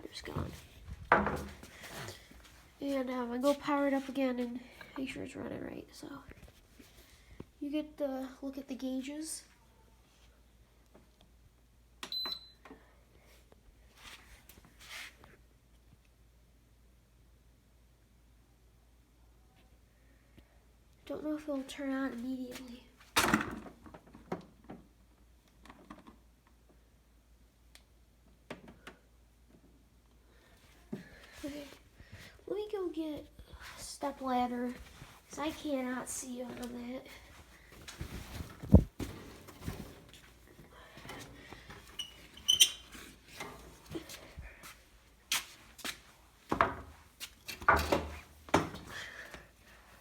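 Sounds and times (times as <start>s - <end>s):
step ladder knocking and clattering: 1.1s - 1.7s.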